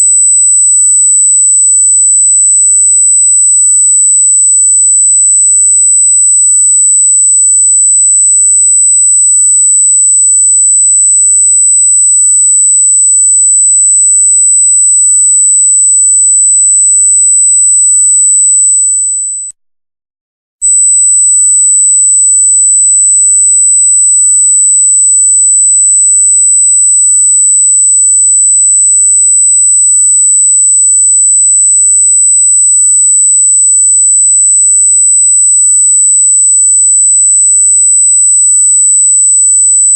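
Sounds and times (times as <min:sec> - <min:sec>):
high electronic test tone: 0:13.2 - 0:19.5, 0:20.6 - 0:28.4.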